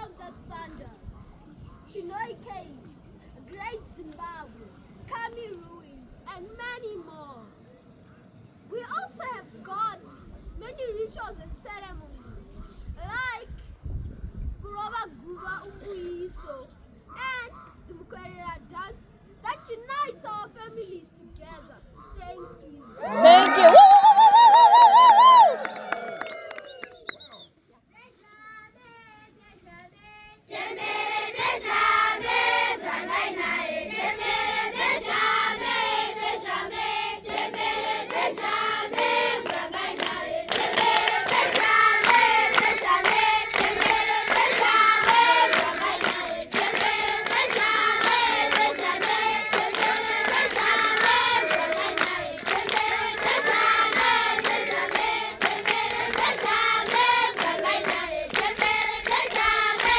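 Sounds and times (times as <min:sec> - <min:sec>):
rhythmic hand clapping: 0:23.0 - 0:27.2, 0:33.9 - 0:59.9
children singing together: 0:30.5 - 0:59.9
person singing: 0:42.1 - 0:58.7.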